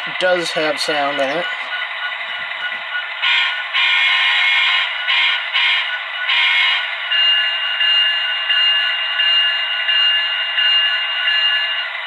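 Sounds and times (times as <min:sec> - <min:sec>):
locomotive bell ringing: 0:00.0 - 0:03.3, 0:05.8 - 0:12.0
diesel locomotive engine idling: 0:00.0 - 0:12.0.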